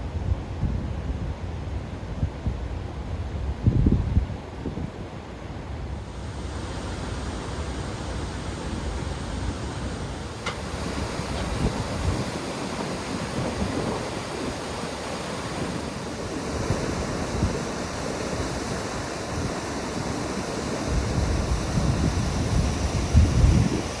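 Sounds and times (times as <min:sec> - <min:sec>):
wind buffeting microphone: 0:03.4 - 0:05.2, 0:10.0 - 0:24.0.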